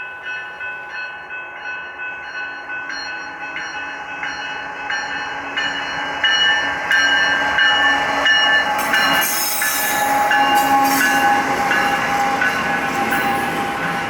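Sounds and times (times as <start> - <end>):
train cars rolling past: 0.0 - 14.0
high wheel squeal: 8.8 - 13.8.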